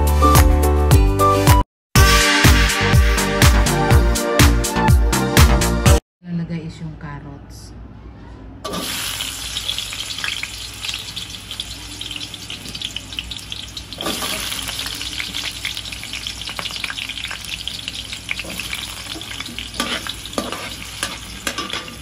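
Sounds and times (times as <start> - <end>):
vegetables sizzling in hot oil: 8.7 - 22.0.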